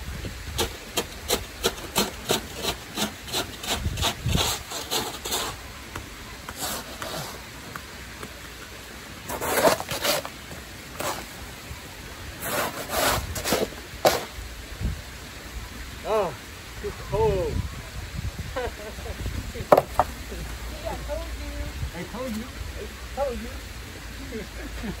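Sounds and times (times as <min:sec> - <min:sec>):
snow being scraped: 0:00.6 - 0:05.6, 0:06.5 - 0:07.5, 0:09.2 - 0:11.4, 0:12.4 - 0:14.4.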